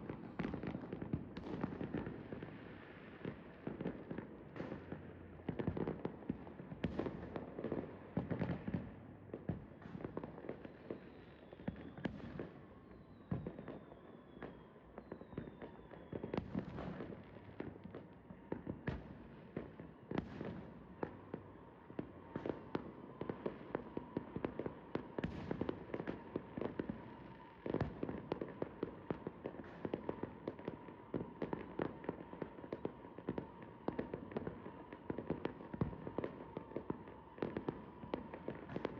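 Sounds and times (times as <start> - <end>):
fireworks bangs and crackles: 0.0 - 38.9
falling firework whistles: 10.5 - 17.2, 20.1 - 38.9.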